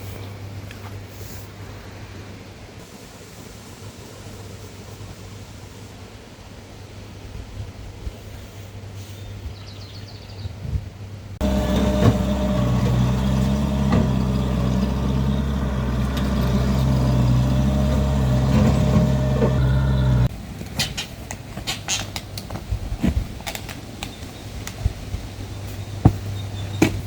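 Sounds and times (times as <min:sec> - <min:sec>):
engine running steadily: 0:11.4 - 0:20.3.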